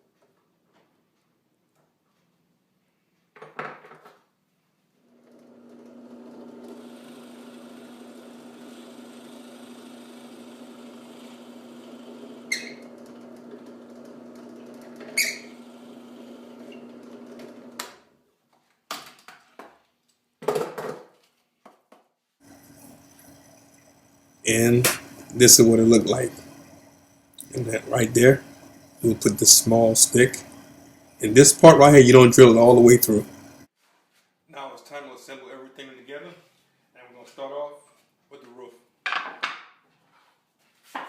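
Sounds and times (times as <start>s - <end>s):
drill press boring plywood: 5.1s - 18.0s, 22.4s - 33.7s.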